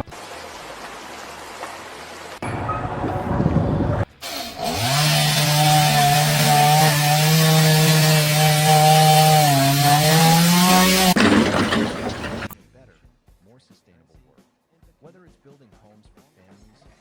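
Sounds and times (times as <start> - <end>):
power saw running: 4.2 - 12.6.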